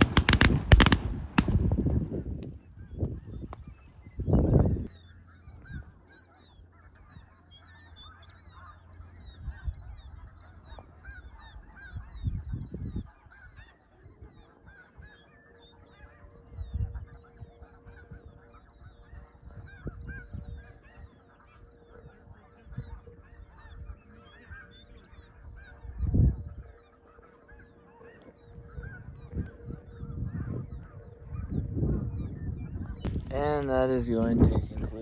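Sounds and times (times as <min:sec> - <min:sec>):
geese yelping: 0:00.0 - 0:01.5, 0:02.1 - 0:35.0
low rumbles: 0:00.0 - 0:03.6.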